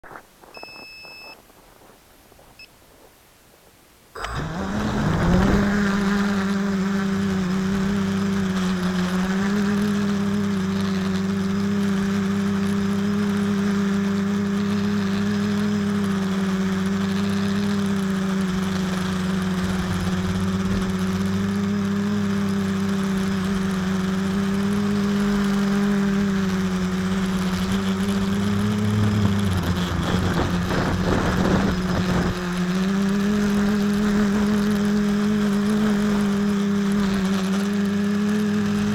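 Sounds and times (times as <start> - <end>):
short high beeps: 0.5 - 1.4
quadcopter propellers buzzing: 4.2 - 38.9.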